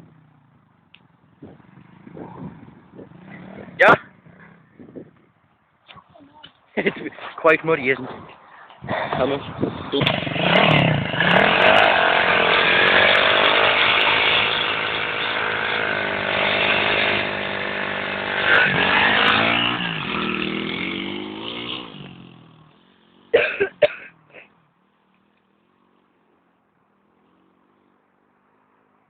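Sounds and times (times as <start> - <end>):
small motorcycle engine revving: 9.1 - 28.1.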